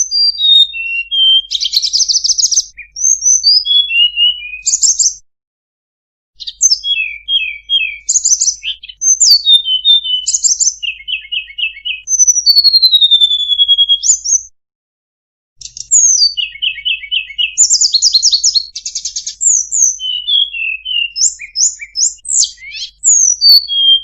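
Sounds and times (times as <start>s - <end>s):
songbird singing: 0.0s - 5.2s, 6.4s - 14.5s, 15.6s - 24.0s.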